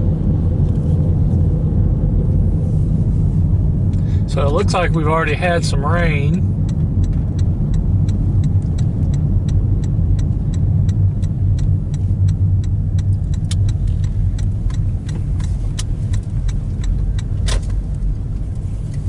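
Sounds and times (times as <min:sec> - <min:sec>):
car engine and tyres rumbling: 0:00.0 - 0:19.0
even ticking: 0:06.6 - 0:17.4.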